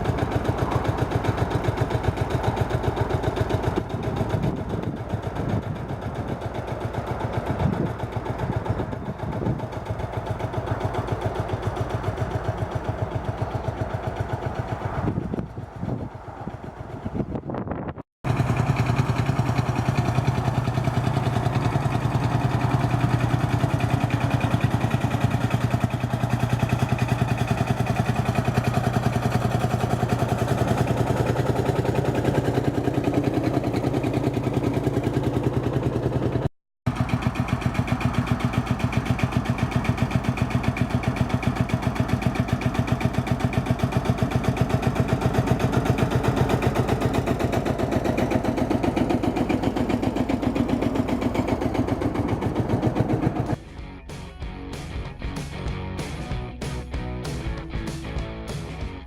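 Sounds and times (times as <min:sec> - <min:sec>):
diesel tractor engine running: 0:00.0 - 0:59.0.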